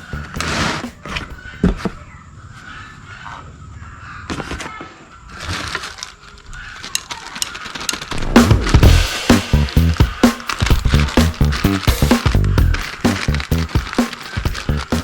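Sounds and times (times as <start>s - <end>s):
packaging crackling and rustling: 5.3s - 8.8s, 9.7s - 15.0s.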